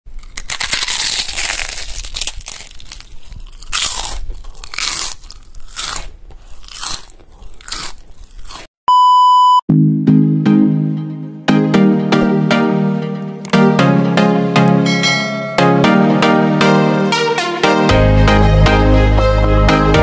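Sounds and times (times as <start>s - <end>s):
crunching bites of crisp food: 0.1s - 8.7s
steady beep: 8.9s - 9.7s
music with held notes: 9.7s - 20.0s.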